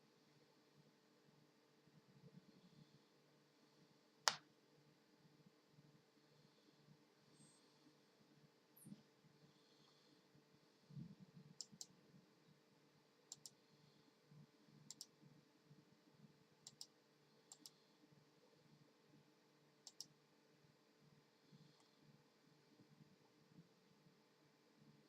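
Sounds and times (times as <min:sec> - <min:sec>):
low steady hum: 0:00.0 - 0:25.0
faint sharp clicks: 0:04.2 - 0:04.5, 0:11.5 - 0:12.0, 0:13.3 - 0:13.6, 0:14.9 - 0:15.2, 0:16.6 - 0:17.8, 0:19.8 - 0:20.2.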